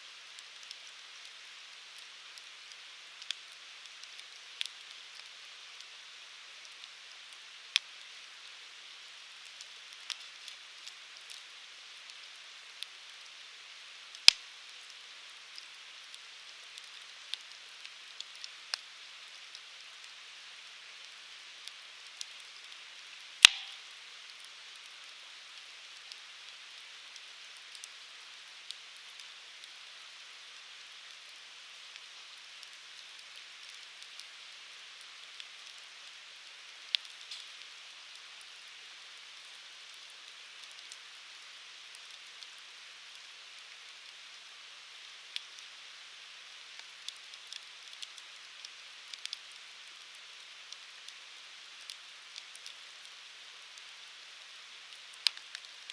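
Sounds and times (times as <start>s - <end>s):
firewood burning with crackles: 0.0s - 55.9s
loud sharp fire pops: 23.4s - 23.9s.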